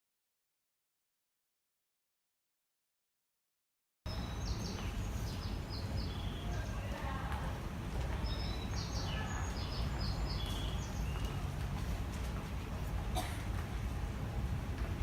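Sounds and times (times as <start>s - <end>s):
small birds chirping: 4.1s - 7.4s, 8.1s - 11.5s.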